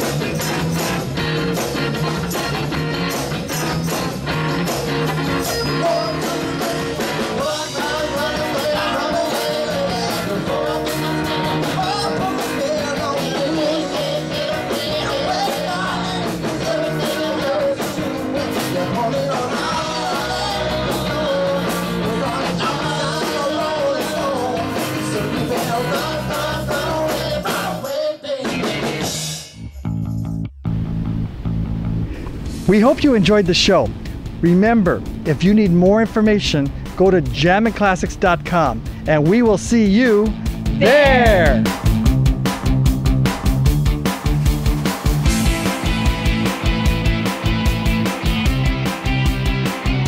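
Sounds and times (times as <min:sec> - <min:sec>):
rock and roll band music: 0:00.0 - 0:50.0.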